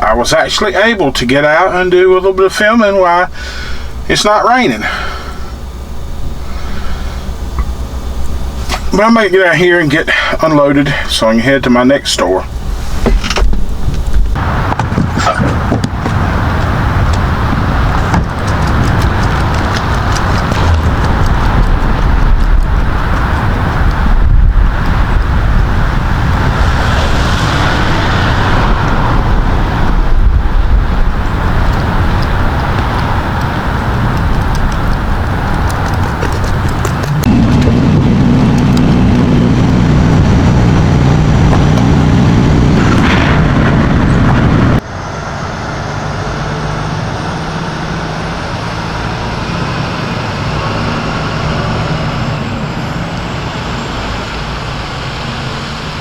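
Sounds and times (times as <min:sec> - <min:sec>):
truck engine running: 0:00.0 - 0:56.0
wind on microphone: 0:12.5 - 0:46.2.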